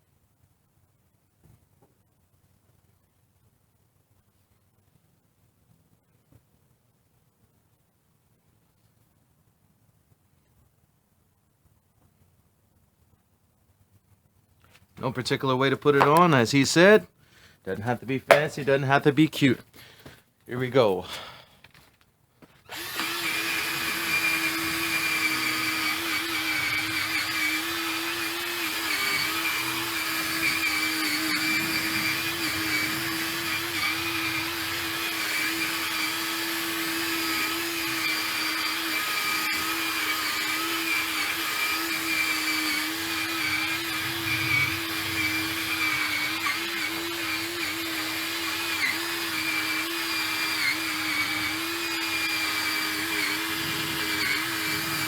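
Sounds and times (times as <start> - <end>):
cordless drill humming: 15.9 - 16.4, 22.7 - 55.0.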